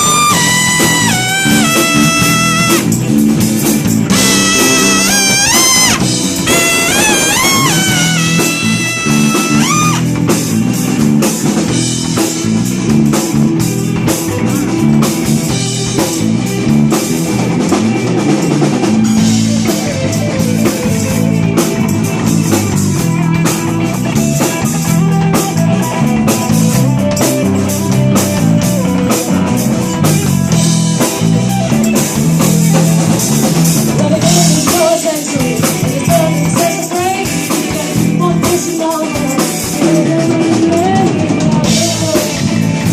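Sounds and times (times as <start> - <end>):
trumpet phrase: 0.0 - 2.9, 4.1 - 10.0
bass guitar: 0.0 - 42.9
drum kit: 0.0 - 42.9
electric guitar: 0.0 - 42.9.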